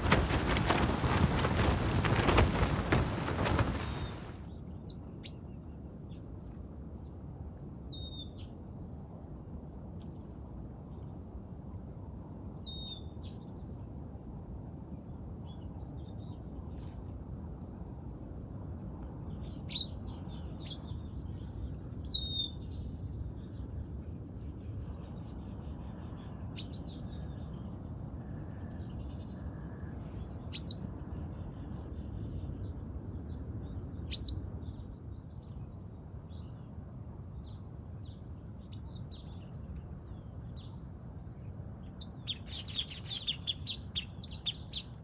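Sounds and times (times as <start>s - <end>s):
birds chirping: 0.0s - 5.5s.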